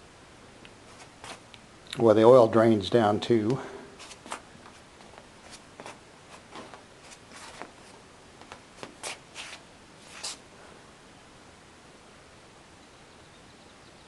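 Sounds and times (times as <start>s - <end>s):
handling rustles and clicks: 3.5s - 9.6s.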